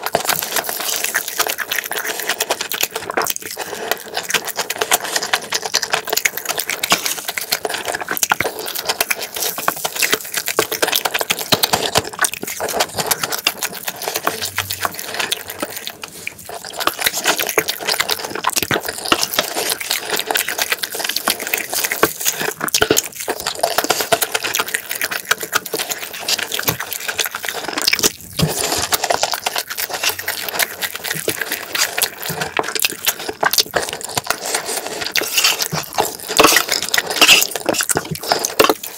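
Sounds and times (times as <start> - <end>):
wet chewing and smacking: 0.0 - 38.9
spoon scraping metal tray: 35.2 - 38.8.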